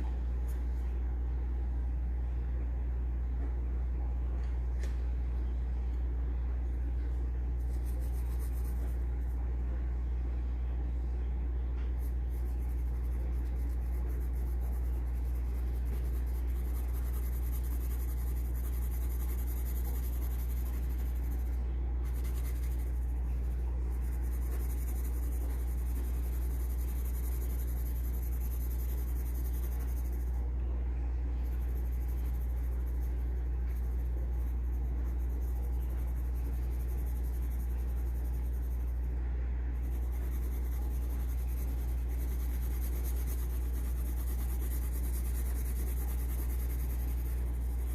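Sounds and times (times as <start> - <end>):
steady low hum: 0.0 - 47.9
pencil scratching on paper: 7.6 - 9.3, 11.9 - 30.4, 31.3 - 47.9.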